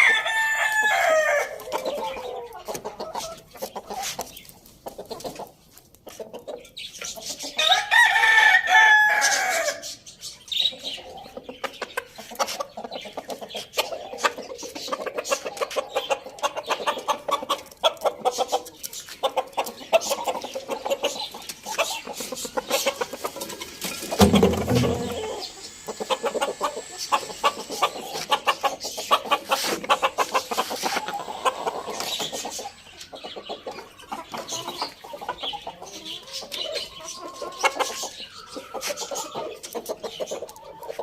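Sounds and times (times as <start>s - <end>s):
rooster crowing: 0.0s - 1.5s, 7.6s - 9.8s
chickens clucking: 0.0s - 41.0s.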